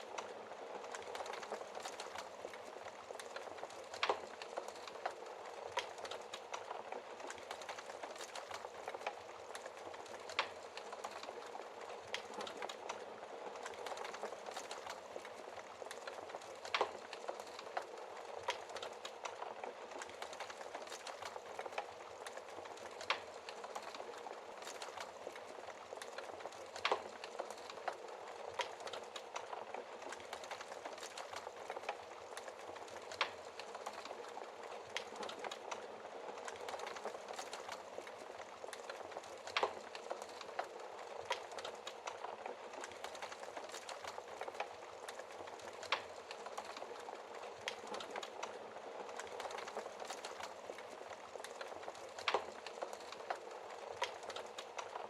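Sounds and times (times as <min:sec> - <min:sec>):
wood fire crackling: 0:00.0 - 0:55.0
burning wood popping: 0:13.6 - 0:55.0.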